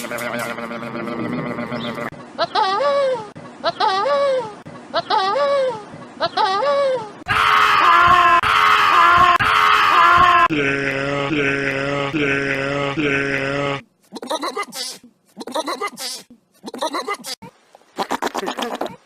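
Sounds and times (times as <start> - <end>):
farm animals bleating: 0.1 - 2.1.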